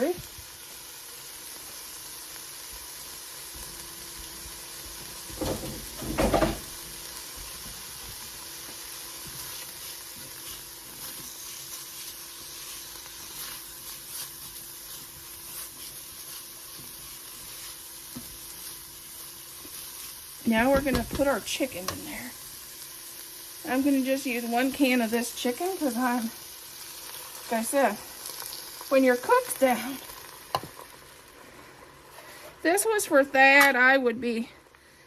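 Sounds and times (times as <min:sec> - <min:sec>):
vegetables sizzling in oil: 0:00.0 - 0:35.0.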